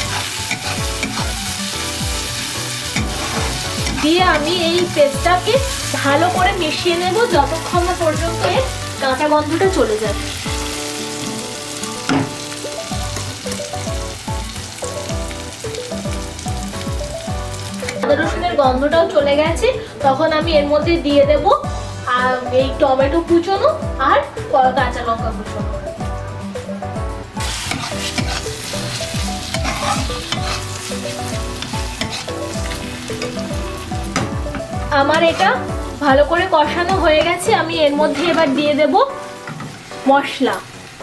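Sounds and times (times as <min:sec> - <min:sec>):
stirring in a pan: 0:00.0 - 0:09.3, 0:27.4 - 0:40.0
paste sizzling in oil: 0:00.0 - 0:18.2, 0:27.4 - 0:41.0.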